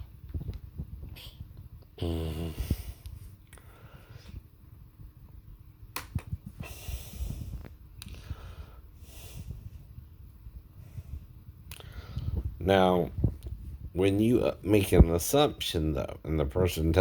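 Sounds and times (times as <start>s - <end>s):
man humming: 2.0s - 2.9s
breathing: 2.4s - 4.4s, 6.6s - 9.8s, 10.8s - 12.5s.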